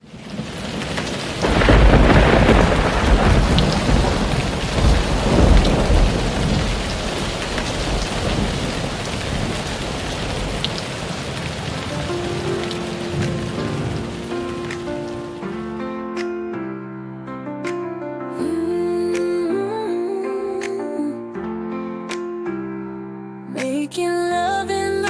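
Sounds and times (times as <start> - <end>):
heavy rain: 0.0 - 15.7
thunder rumbling: 0.1 - 15.6.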